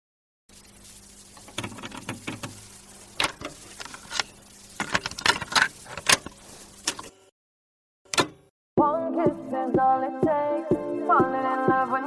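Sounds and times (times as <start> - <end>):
sharp clicks and rattles: 3.2 - 7.1.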